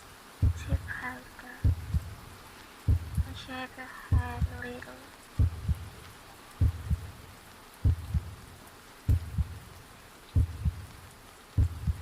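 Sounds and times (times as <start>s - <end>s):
soft rain hiss: 0.0s - 12.0s
heartbeat low thumps: 0.4s - 1.0s, 1.6s - 2.3s, 2.9s - 3.4s, 4.1s - 4.7s, 5.4s - 7.2s, 7.8s - 8.5s, 9.1s - 9.7s, 10.4s - 10.9s, 11.5s - 12.0s.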